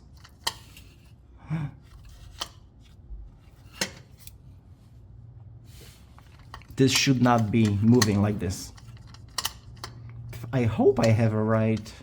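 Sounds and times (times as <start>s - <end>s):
sharp metallic clicks and knocks: 6.4s - 10.2s.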